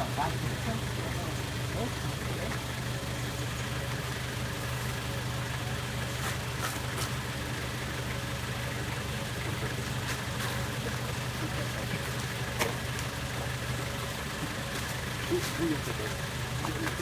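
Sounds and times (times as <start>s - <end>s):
vehicle engine running at low revs: 0.0s - 17.0s.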